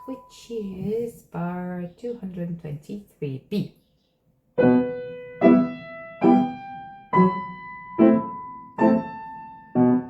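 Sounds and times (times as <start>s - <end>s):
piano chords: 0.0s - 0.5s, 4.6s - 10.0s.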